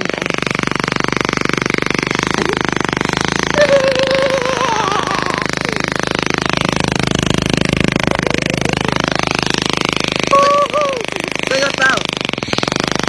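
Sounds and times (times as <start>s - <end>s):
small motorcycle engine putter: 0.0s - 13.0s.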